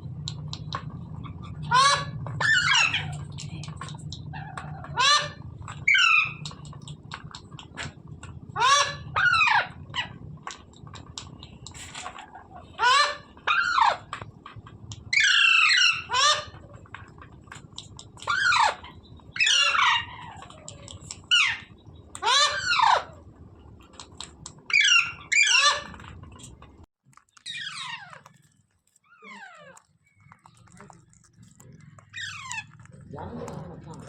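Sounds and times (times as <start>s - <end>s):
steady low hum: 0.0s - 26.9s
parakeet harsh calls: 1.2s - 3.2s, 4.3s - 6.4s, 8.5s - 10.2s, 12.8s - 14.1s, 15.1s - 16.6s, 18.2s - 20.4s, 21.2s - 23.2s, 24.7s - 26.0s, 27.4s - 28.2s, 32.1s - 32.8s.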